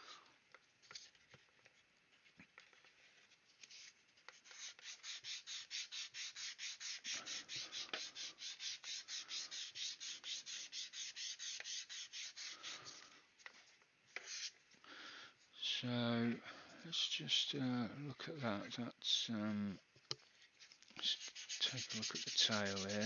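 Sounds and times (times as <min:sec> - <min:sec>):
hand sanding plastic: 0:00.9 - 0:14.6, 0:21.0 - 0:23.0.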